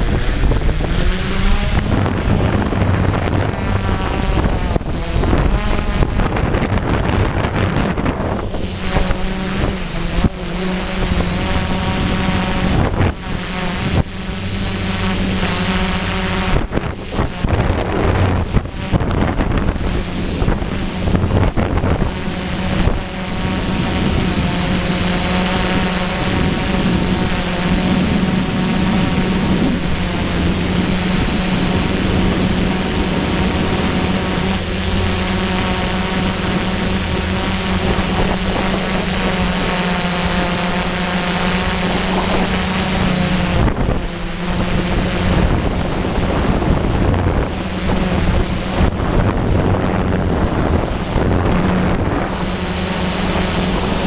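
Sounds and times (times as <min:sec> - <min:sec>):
drone motors humming: 0:00.0 - 0:54.0
wind on microphone: 0:00.0 - 0:54.0.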